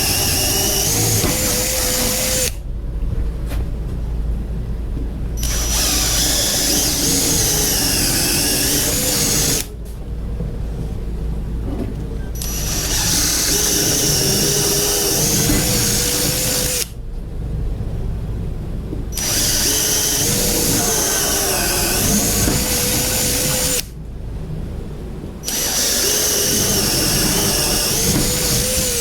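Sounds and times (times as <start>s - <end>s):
electric drill running: 0.0s - 2.6s, 5.4s - 9.7s, 12.4s - 17.0s, 19.2s - 23.9s, 25.4s - 29.0s.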